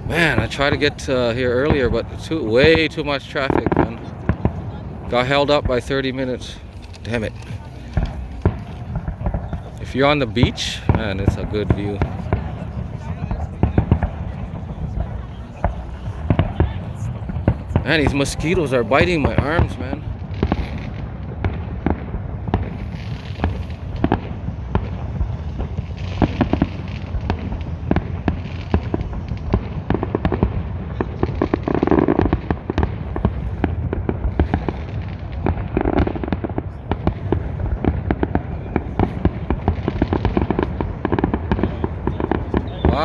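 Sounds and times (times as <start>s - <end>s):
fireworks bursts and crackling: 0.0s - 43.0s.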